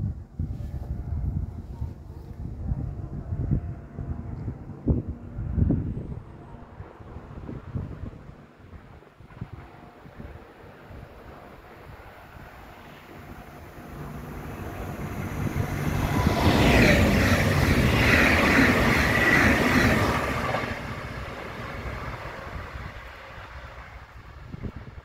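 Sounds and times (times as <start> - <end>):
train wheels rushing on rails: 9.3 - 24.3.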